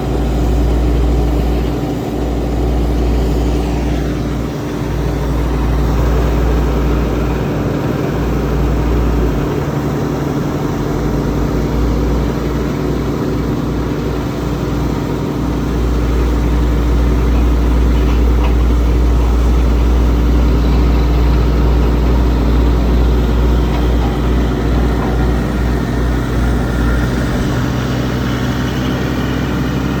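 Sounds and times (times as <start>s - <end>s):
heavy engine rumbling: 0.0s - 30.0s.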